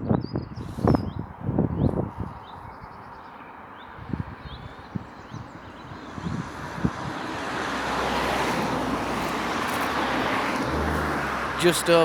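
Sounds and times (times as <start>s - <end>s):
road vehicle passing: 3.2s - 12.0s.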